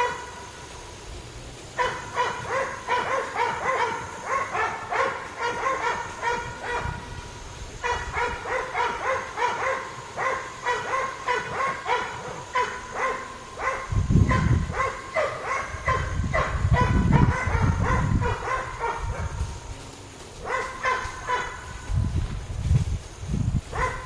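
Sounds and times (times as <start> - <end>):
dog yapping: 0.0 - 0.4, 1.8 - 7.1, 7.8 - 19.4, 20.4 - 21.9, 23.7 - 24.0
wind gusting on microphone: 0.0 - 24.0.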